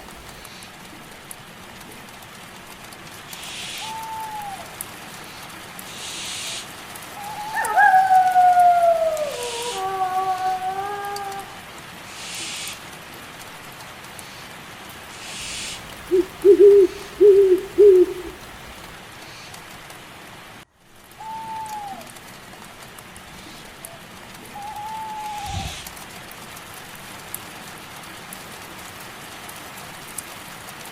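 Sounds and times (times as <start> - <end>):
owl hooting: 0.0 - 0.4, 3.4 - 4.6, 7.2 - 11.5, 15.2 - 18.9, 24.6 - 25.9
higher falling bird calls: 0.0 - 0.5, 3.3 - 4.7, 5.9 - 11.5, 15.2 - 19.0, 24.6 - 26.0
steady rain: 0.0 - 30.9.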